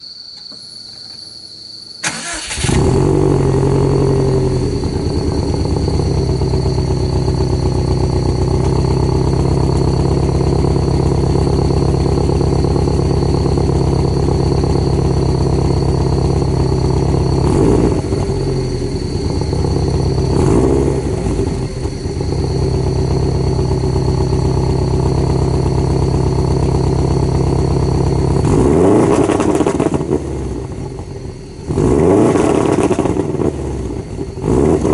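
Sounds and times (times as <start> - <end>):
high whine: 0.0 - 33.4
car engine starting and idling: 2.0 - 34.9
engine throttle blips: 2.0 - 34.9.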